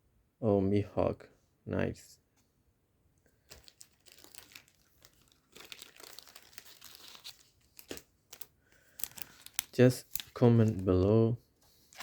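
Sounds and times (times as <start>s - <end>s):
foil wrapper crinkling: 3.4s - 11.0s.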